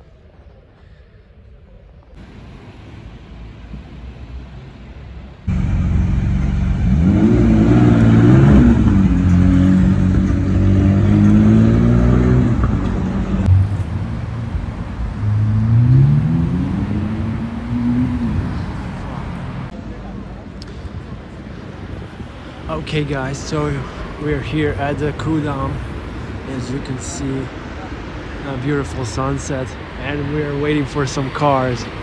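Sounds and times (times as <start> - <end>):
street noise: 0.0 - 32.0
sports car engine revving: 5.5 - 13.6.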